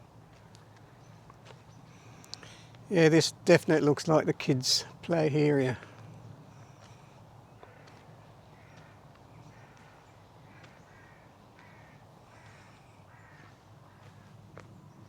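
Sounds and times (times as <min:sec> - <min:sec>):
crow cawing faintly: 0:05.1 - 0:14.7.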